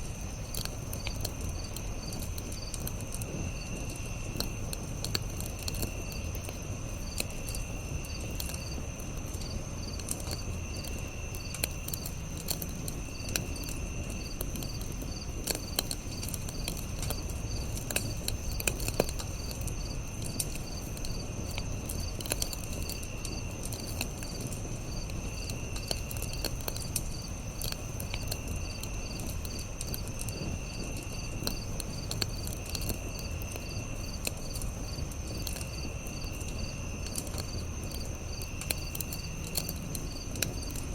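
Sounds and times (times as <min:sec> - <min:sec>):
campfire crackling and popping: 0:00.0 - 0:40.9
insects trilling: 0:00.0 - 0:40.9.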